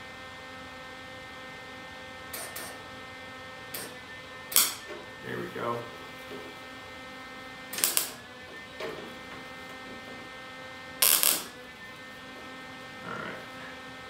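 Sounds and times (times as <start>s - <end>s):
electrical hum: 0.0s - 14.0s
welding bursts on metal: 4.5s - 4.8s, 7.7s - 8.2s, 11.0s - 11.6s.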